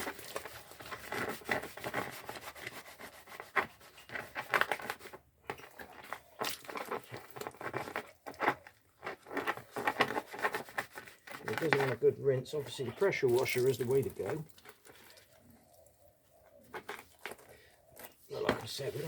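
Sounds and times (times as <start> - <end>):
hands scrubbing plastic panel: 0.0 - 5.2, 5.8 - 15.0.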